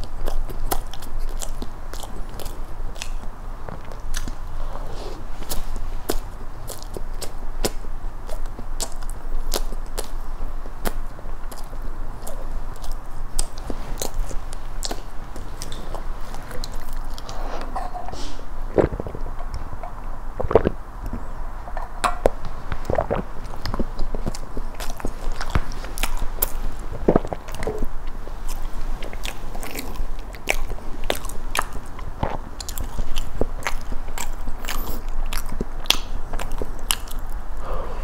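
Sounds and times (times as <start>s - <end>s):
crisp crunches of chewing: 0.0s - 21.4s, 22.2s - 37.7s
sip through a straw: 17.2s - 19.0s.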